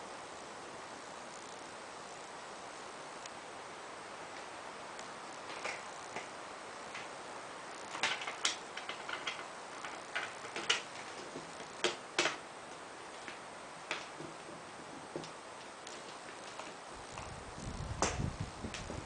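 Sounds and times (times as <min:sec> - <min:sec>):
parts clicking and knocking: 0:07.8 - 0:17.3.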